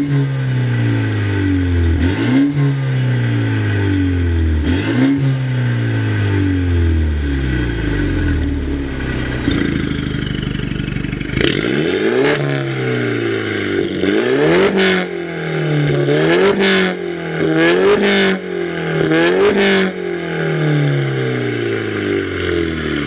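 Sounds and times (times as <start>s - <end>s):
car engine revving and idling: 0.0s - 23.0s.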